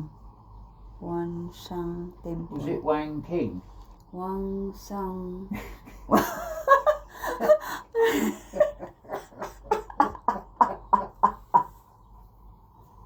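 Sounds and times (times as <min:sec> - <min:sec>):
person laughing: 0:05.6 - 0:11.8.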